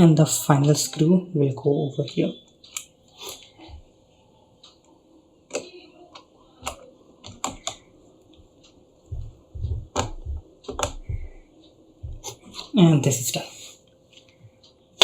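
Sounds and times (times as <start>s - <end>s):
screwdriver clicks and taps: 9.9s - 11.1s.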